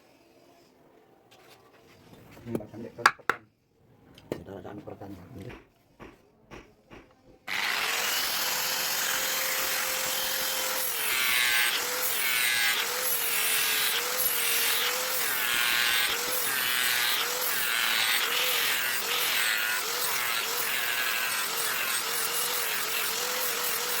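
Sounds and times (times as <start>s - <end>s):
electric grinder grinding steel: 7.5s - 24.0s.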